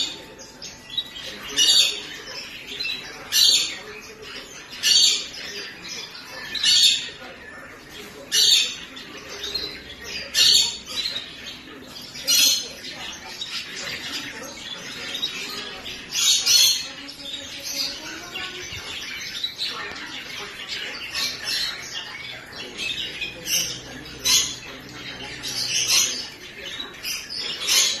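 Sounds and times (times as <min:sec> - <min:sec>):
birds squawking and chirping: 0:00.0 - 0:28.0.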